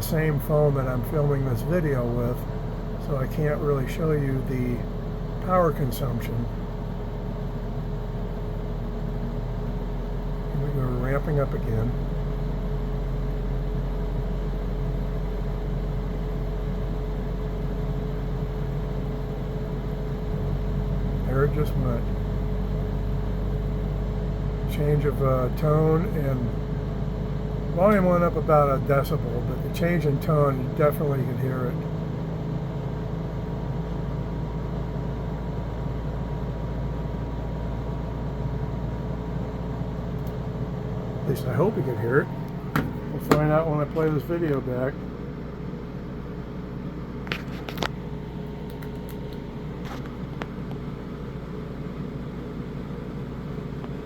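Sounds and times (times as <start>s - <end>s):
air conditioner humming: 0.0s - 34.8s, 37.0s - 54.0s
compressor whine: 0.0s - 54.0s.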